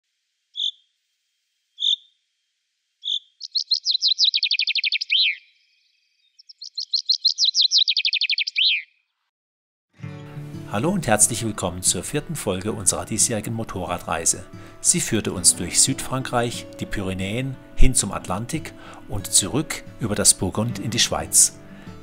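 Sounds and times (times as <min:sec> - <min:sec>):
bird singing chirps and trills: 0:00.6 - 0:00.9, 0:01.8 - 0:02.1, 0:03.0 - 0:09.1.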